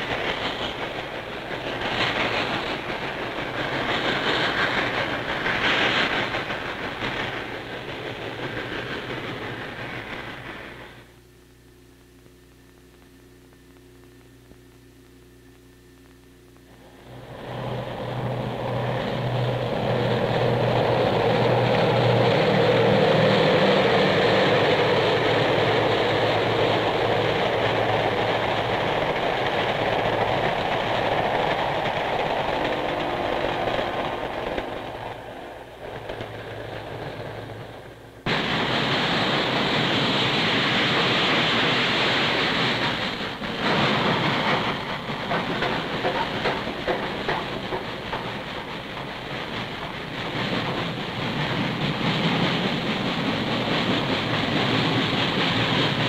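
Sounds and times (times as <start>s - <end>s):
train running on rails: 0.0s - 11.3s, 16.6s - 56.0s
faint low hum: 11.0s - 18.6s.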